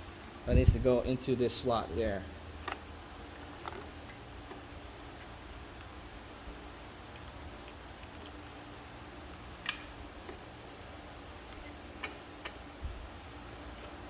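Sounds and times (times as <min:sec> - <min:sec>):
faint steady hum: 0:00.0 - 0:14.0
clicks of metal parts handled: 0:11.5 - 0:12.6.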